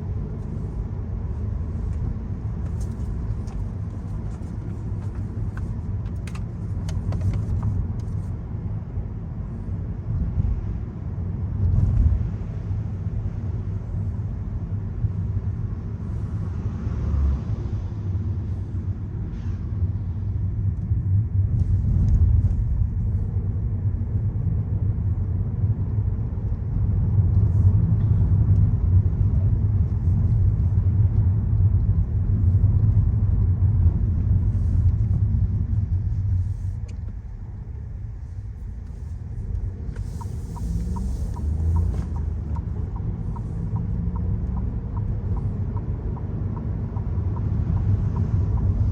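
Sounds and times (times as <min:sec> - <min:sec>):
car engine: 0:00.0 - 0:09.3, 0:20.7 - 0:48.9
road rumble: 0:00.0 - 0:48.9.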